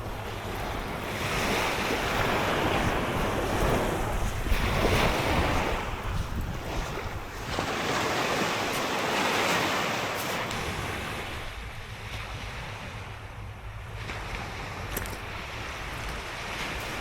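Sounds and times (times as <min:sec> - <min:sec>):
sea waves washing onto shore: 0:00.0 - 0:17.0
wind rumbling on microphone: 0:00.0 - 0:17.0.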